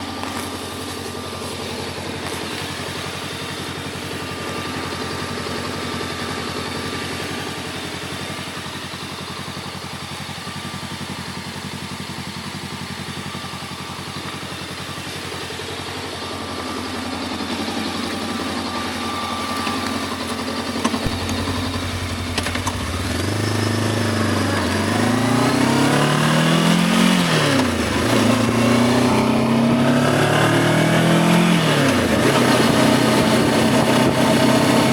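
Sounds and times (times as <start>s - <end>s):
motorcycle engine idling and accelerating: 0.0s - 34.9s
sharp clicks: 20.8s - 23.2s.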